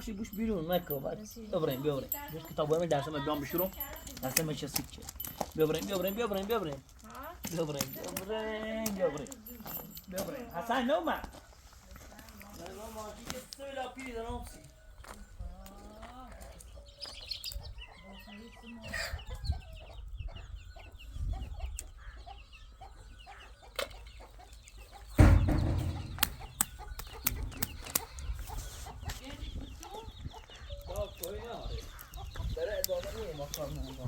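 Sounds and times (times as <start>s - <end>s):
chickens clucking: 14.0s - 34.0s
loud thump: 25.2s - 26.6s.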